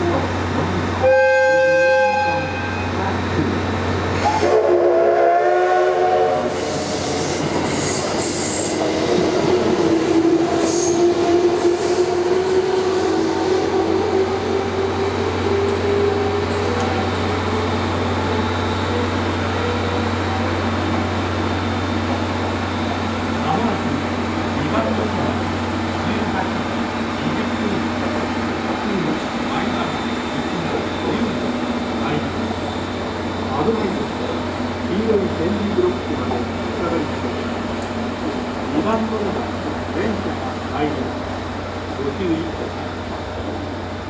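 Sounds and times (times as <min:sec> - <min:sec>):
train horn blast: 0:01.0 - 0:03.0, 0:04.2 - 0:06.6.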